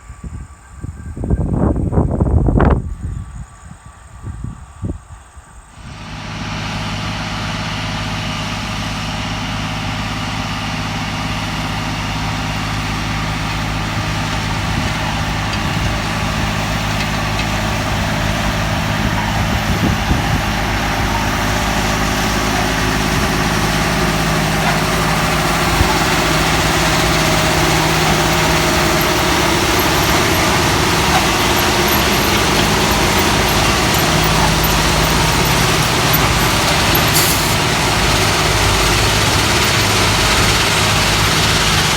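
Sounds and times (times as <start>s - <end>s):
large engine running: 5.8s - 41.9s
broad rushing noise: 21.0s - 41.9s.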